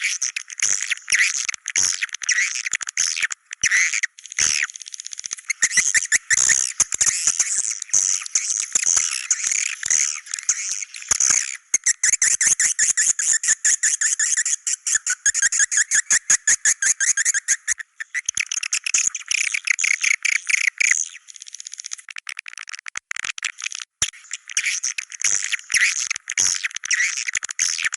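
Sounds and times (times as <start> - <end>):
swiftlet clicks and chattering trills: 0.0 - 27.9
swiftlets twittering and chirping: 2.2 - 22.1.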